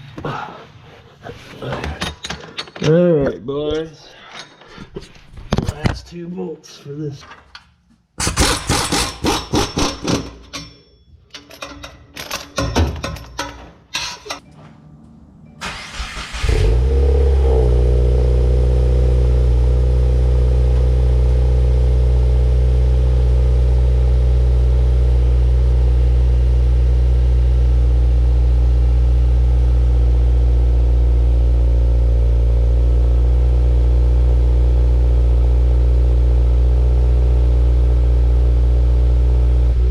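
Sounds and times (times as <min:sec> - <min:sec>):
sharp clicks and knocks: 0:07.2 - 0:14.5
car engine starting and idling: 0:14.3 - 0:39.9.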